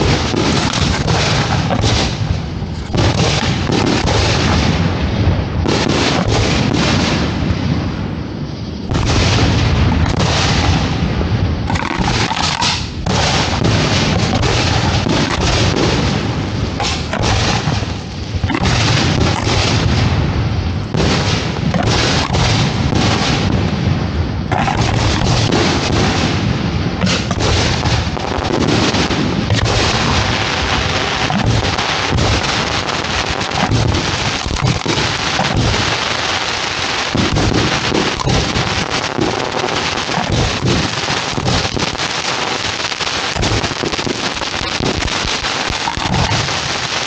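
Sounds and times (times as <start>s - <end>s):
fireworks bursting: 0.0s - 47.0s.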